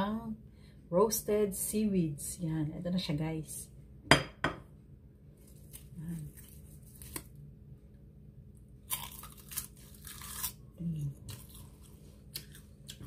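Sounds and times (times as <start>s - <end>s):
seaweed crunching when chewed: 8.8s - 10.6s, 11.2s - 13.0s.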